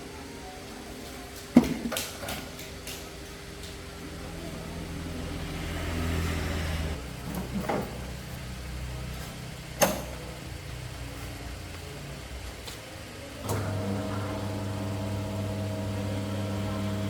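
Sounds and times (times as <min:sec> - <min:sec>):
motor humming: 0:03.4 - 0:07.0, 0:13.4 - 0:17.0.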